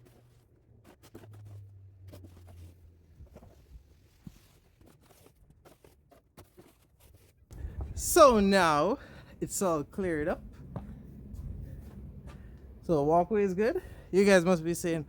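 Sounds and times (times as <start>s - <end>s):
low hum: 7.5s - 14.1s.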